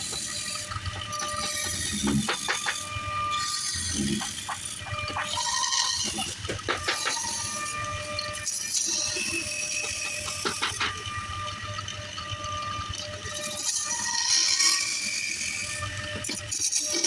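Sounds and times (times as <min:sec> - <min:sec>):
turning tool scraping wood: 0:00.0 - 0:11.4
lathe motor whine: 0:00.0 - 0:17.0
small knocks: 0:06.0 - 0:07.8.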